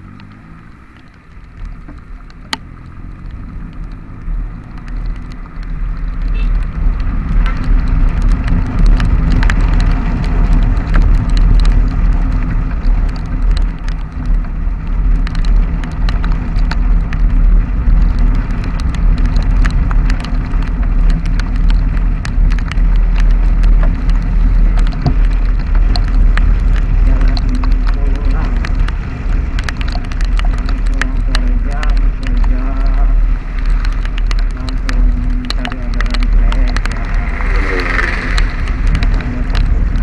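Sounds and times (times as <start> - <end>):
motorcycle engine drone: 0.0 - 40.0
raindrops ticking: 0.0 - 40.0
wind rumble on microphone: 0.0 - 40.0.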